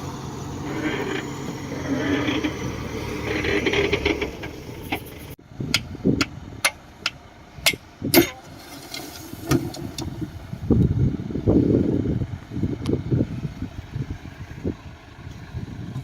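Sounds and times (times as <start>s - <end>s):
metallic clanking: 0.0s - 10.1s
bulldozer running: 0.0s - 16.0s.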